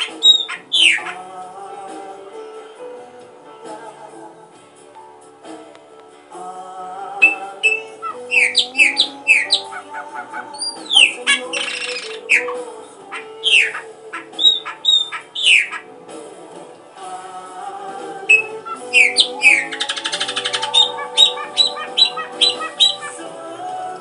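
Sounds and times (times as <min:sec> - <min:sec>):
bird chirps sweeping downward: 0:00.0 - 0:01.2, 0:07.2 - 0:12.6, 0:13.2 - 0:15.9, 0:18.3 - 0:23.2
background music with sustained notes: 0:00.0 - 0:24.0.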